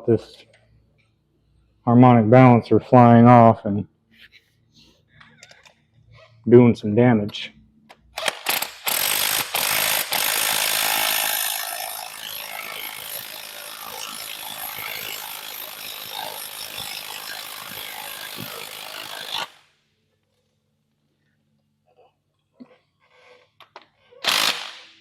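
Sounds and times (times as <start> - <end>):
ratchet clicking: 8.1 - 19.6.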